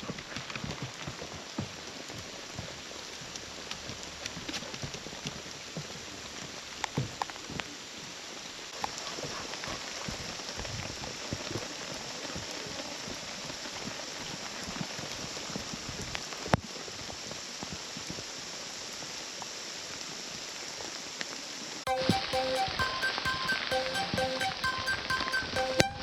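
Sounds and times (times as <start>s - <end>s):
heavy rain: 0.0s - 26.0s
music: 21.9s - 26.0s.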